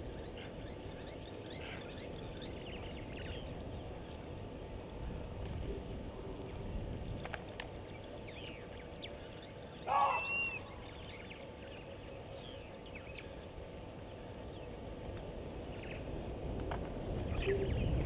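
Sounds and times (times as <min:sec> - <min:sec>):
birds chirping: 0:00.0 - 0:16.4, 0:17.1 - 0:18.0
low outdoor background: 0:00.0 - 0:18.0
loud short bird call: 0:09.8 - 0:10.8.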